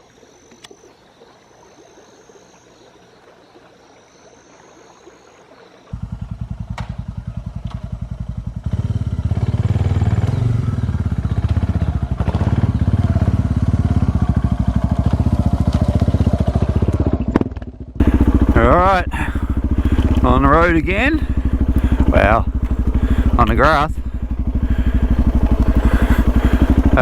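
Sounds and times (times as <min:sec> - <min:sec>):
motorcycle engine running: 0:05.9 - 0:27.0.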